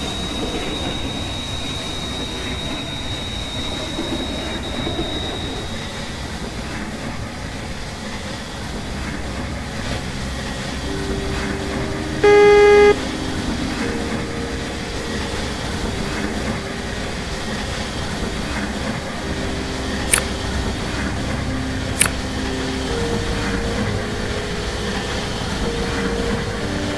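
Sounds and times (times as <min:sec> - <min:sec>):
train rumbling: 0:00.0 - 0:26.9
train horn toot: 0:10.7 - 0:26.9.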